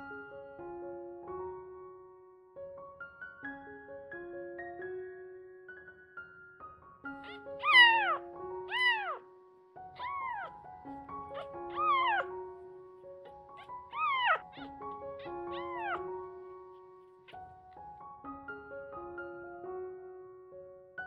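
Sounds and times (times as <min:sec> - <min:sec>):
soft piano music: 0:00.0 - 0:21.0
kitten meowing: 0:07.2 - 0:09.3, 0:09.9 - 0:12.6, 0:13.2 - 0:17.5.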